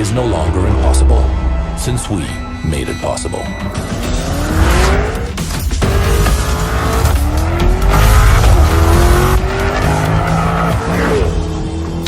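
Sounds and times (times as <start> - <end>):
car engine accelerating hard: 3.8 - 12.0.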